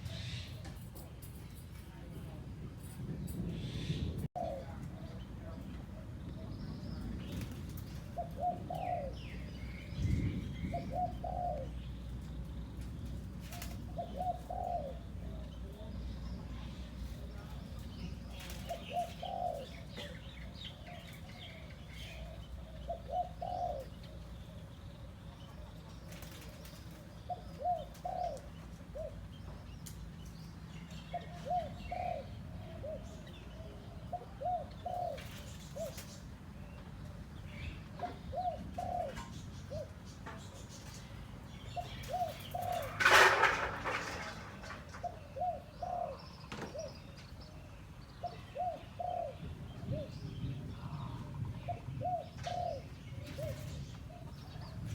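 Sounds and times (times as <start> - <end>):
small birds chirping: 3.0 - 43.1, 43.8 - 54.9
dove cooing: 3.7 - 5.0, 7.3 - 11.9, 13.3 - 15.8, 17.4 - 29.4, 31.0 - 36.3, 37.9 - 40.3, 41.7 - 54.9.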